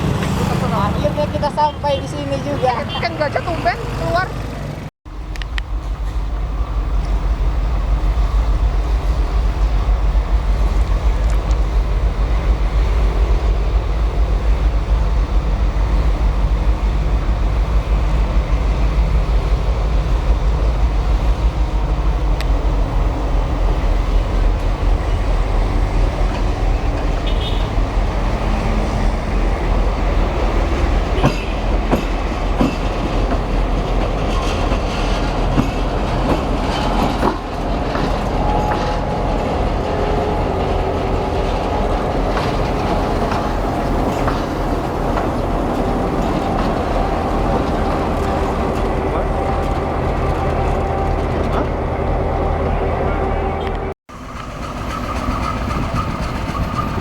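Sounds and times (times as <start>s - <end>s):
wheel clickety-clack: 0.0s - 4.9s, 23.5s - 57.0s
train rumbling on rails: 0.0s - 57.0s.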